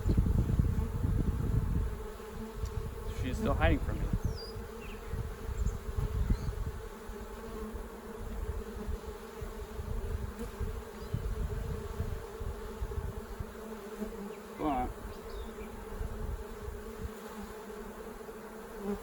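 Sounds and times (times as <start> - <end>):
low rumbling on microphone: 0.0 - 6.9
honey bees buzzing: 0.0 - 19.0.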